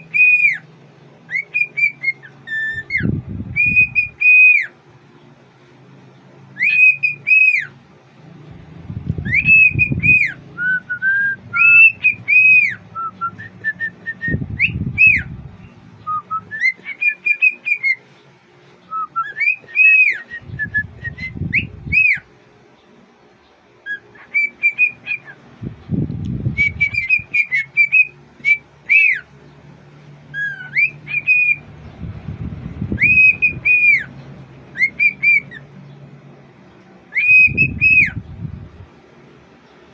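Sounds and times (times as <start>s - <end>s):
cockatiel whistling: 0.0s - 0.6s, 1.3s - 4.7s, 6.6s - 7.7s, 9.2s - 18.0s, 18.9s - 22.3s, 23.8s - 25.4s, 26.5s - 29.3s, 30.3s - 31.7s, 32.9s - 34.1s, 34.7s - 35.7s, 37.1s - 38.2s
low rumble: 8.2s - 16.6s, 25.6s - 27.2s, 31.6s - 34.8s.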